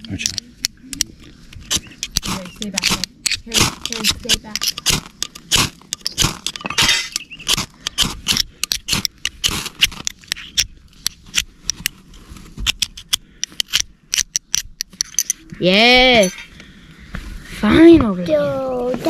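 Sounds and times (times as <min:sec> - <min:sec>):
fire steel scraping: 0:00.0 - 0:13.8.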